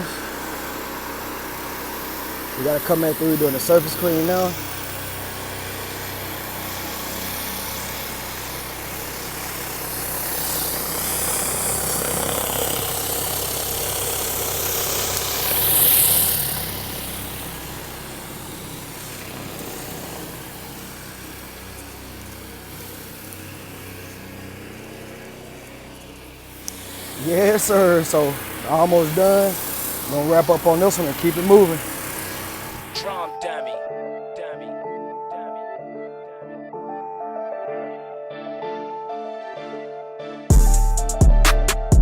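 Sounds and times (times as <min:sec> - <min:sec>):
high-pressure water spraying: 0:00.0 - 0:33.1
pressure washer engine running: 0:00.0 - 0:33.4, 0:40.5 - 0:42.0.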